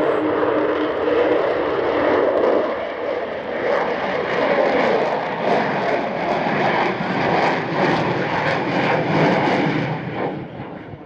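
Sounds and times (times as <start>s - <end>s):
jet aircraft engines roaring: 0.0s - 11.0s.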